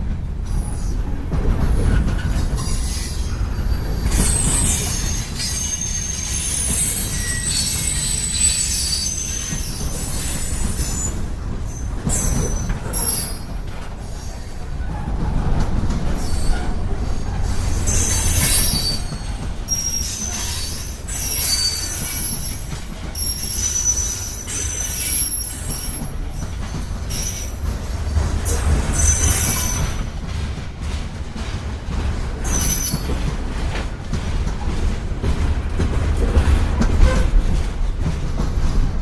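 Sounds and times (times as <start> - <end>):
wheel flanges squealing: 2.6 - 13.6, 16.2 - 27.6.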